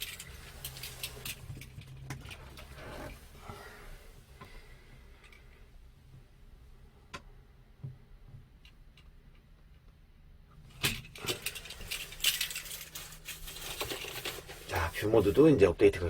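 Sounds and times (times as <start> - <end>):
clicking and rattling: 0.0 - 3.6, 10.6 - 15.0.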